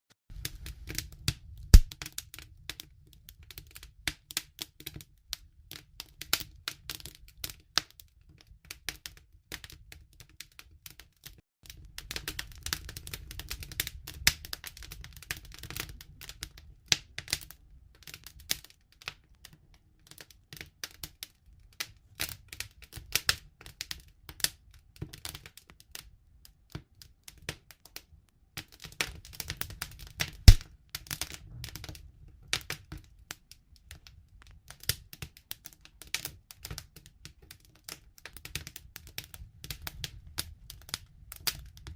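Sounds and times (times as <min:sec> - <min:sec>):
campfire crackling and popping: 0:00.3 - 0:07.8, 0:11.6 - 0:21.2, 0:28.6 - 0:41.9.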